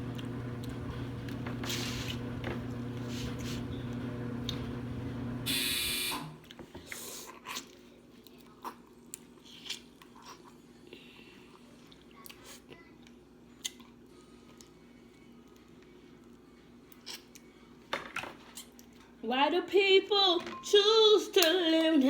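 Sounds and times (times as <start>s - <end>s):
clothes dryer humming: 0.0s - 6.4s
dryer buzzer: 0.0s - 6.4s
crab shells cracking and chewing: 7.4s - 10.6s, 15.4s - 17.6s.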